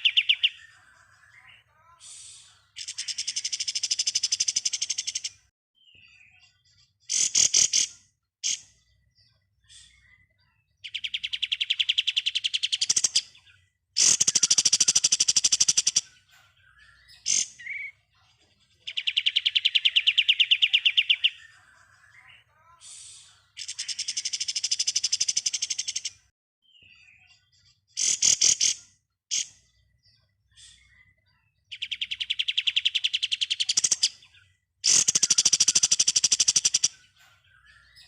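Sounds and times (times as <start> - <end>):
bird rapid rattling song: 0.0 - 0.7, 2.8 - 5.4, 7.0 - 8.9, 10.8 - 17.9, 18.9 - 21.5, 23.6 - 26.3, 27.9 - 29.8, 31.7 - 38.0.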